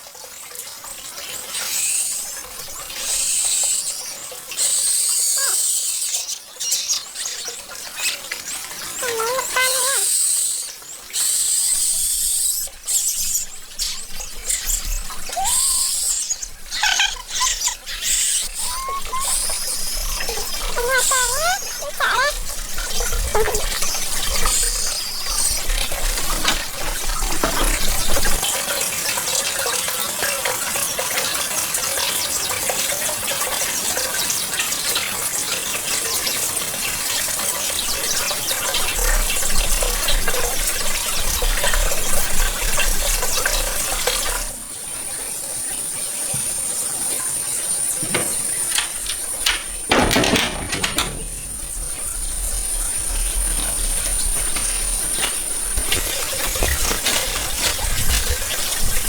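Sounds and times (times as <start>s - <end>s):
water splashing and sloshing: 12.5s - 29.7s, 45.7s - 59.0s.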